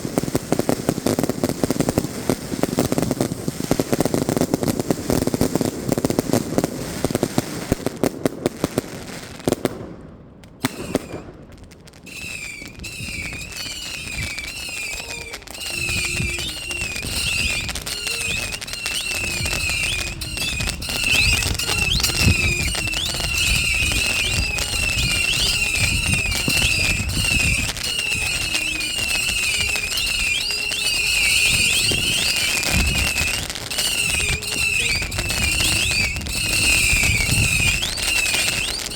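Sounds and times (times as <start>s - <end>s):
fireworks bangs and thuds: 0.0s - 38.9s
fireworks crackling: 0.0s - 38.9s
high-pitched chirping: 12.1s - 38.9s.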